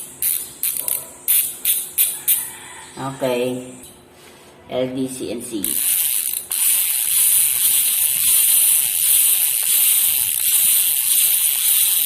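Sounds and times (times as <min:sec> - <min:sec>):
bicycle hub freewheel buzzing: 0:00.0 - 0:02.5, 0:05.6 - 0:12.0.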